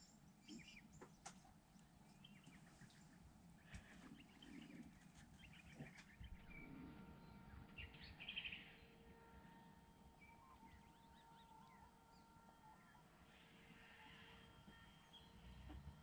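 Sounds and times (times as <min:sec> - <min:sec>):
faint bird calls and chirps: 0:00.0 - 0:09.6, 0:10.2 - 0:16.0
bird trill: 0:05.4 - 0:09.1.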